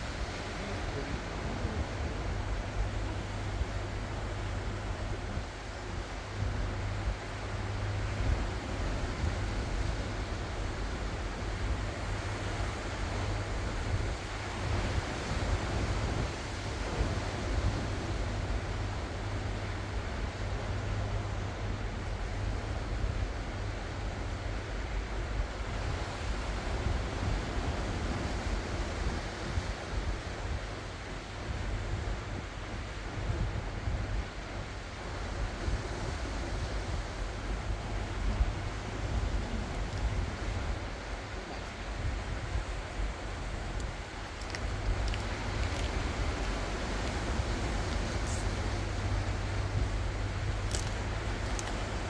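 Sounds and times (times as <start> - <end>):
ocean waves washing ashore: 0.0 - 52.0
wind buffeting microphone: 0.0 - 52.0.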